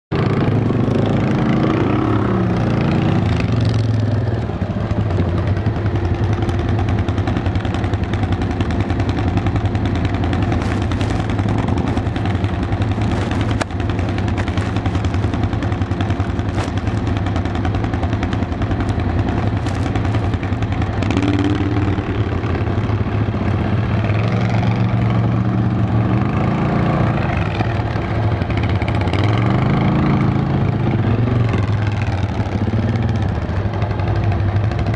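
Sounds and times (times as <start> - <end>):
atv engine running: 0.1 - 34.9.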